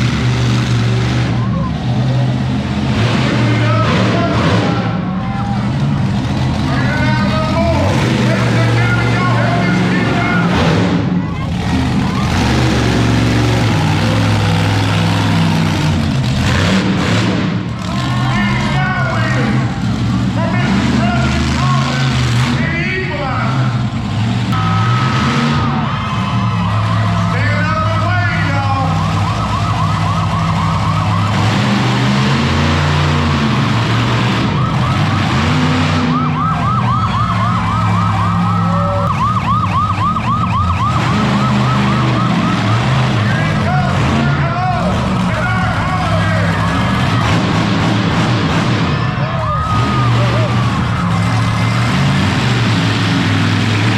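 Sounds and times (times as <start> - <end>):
truck engine revving: 0.0 - 53.9
siren yelping: 24.5 - 27.7, 28.4 - 32.4, 34.3 - 44.2, 49.0 - 51.8
loud rushing noise: 40.8 - 53.9.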